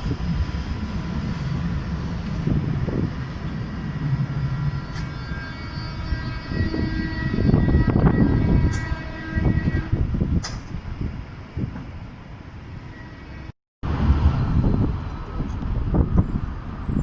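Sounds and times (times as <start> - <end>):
electric train rumbling past: 0.0 - 17.0
sharp click: 10.4 - 10.7.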